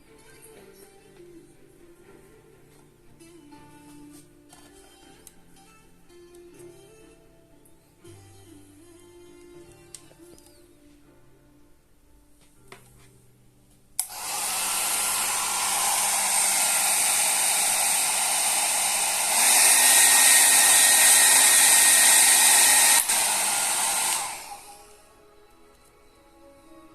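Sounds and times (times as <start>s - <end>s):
hair dryer blowing: 14.0s - 25.2s.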